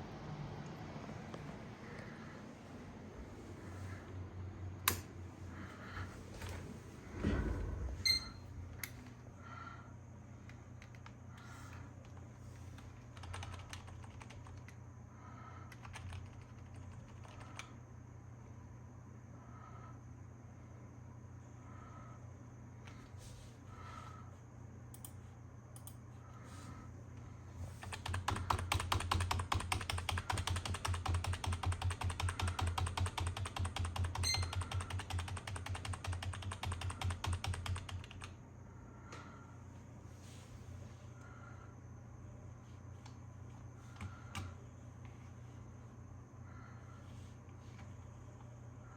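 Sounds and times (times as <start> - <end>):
steady low hum: 0.0 - 48.9
keyboard typing: 10.5 - 14.8, 15.6 - 17.8, 27.8 - 38.4.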